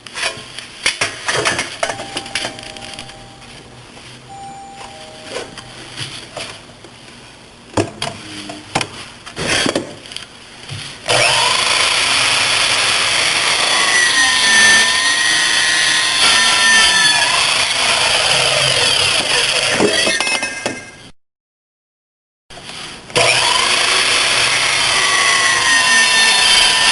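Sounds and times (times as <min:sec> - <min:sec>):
saw cutting metal: 0:11.1 - 0:20.1, 0:23.2 - 0:26.9.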